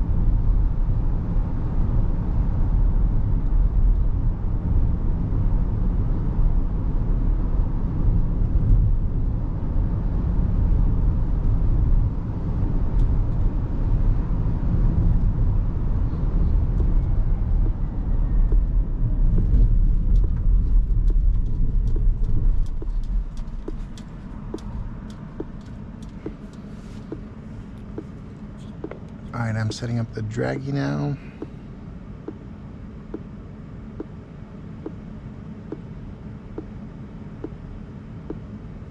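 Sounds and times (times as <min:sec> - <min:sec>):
road and tyre rumble: 0:00.0 - 0:38.9
light irregular ticks: 0:20.1 - 0:27.2.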